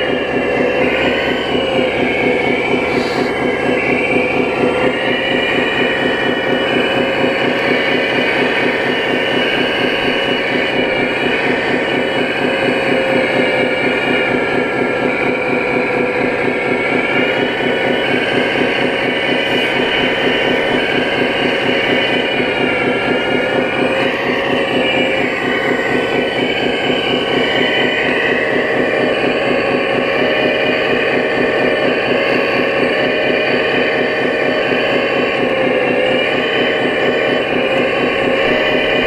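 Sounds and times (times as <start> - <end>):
model machinery engine note: 0.0 - 39.0
motor and hydraulic whine: 0.0 - 39.0.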